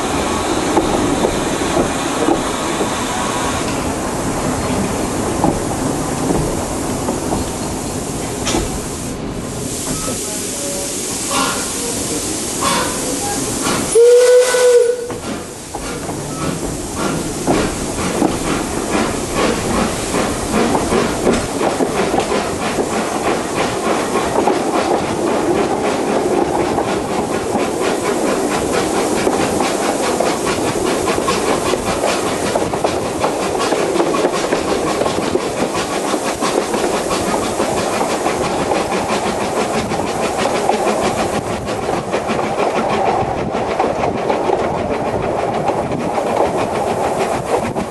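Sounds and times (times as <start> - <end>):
steam engine exhaust beats: 0.0 - 47.9
train running on rails: 0.0 - 47.9
steam whistle blast: 13.9 - 15.2.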